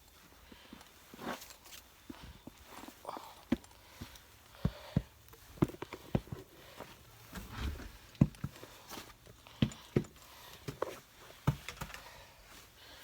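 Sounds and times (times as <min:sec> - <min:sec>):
footsteps thumping and clicking: 0:03.5 - 0:12.0.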